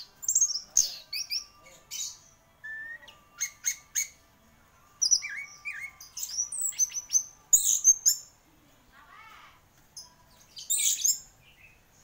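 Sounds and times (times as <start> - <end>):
thrush singing: 0.0 - 8.4.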